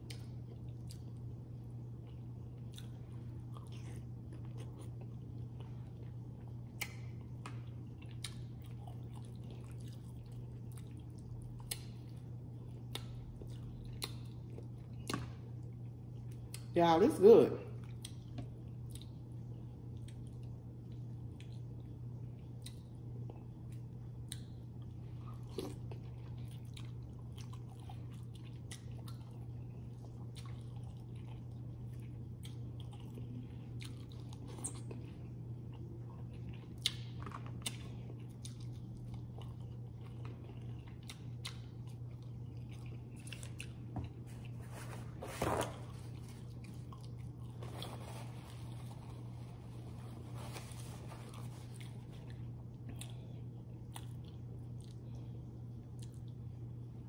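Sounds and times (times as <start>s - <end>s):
person chewing food: 0.0s - 16.7s, 17.8s - 45.2s, 45.9s - 56.4s
steady low hum: 0.0s - 57.0s
food crunching: 22.6s - 55.1s.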